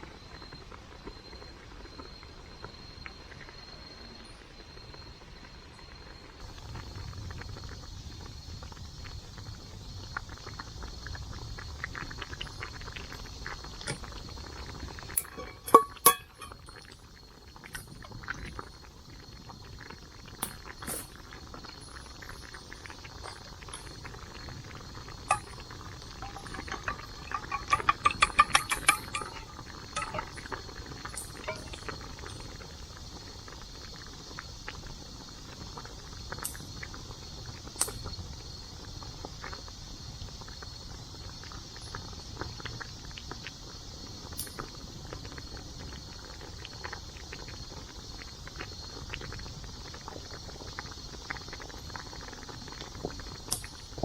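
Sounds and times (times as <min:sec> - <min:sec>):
faint steady high tone: 0:00.0 - 0:06.4, 0:14.9 - 0:17.0, 0:20.4 - 0:32.6
camp cookware clinking: 0:11.9 - 0:18.7, 0:20.0 - 0:32.9, 0:53.5 - 0:54.0.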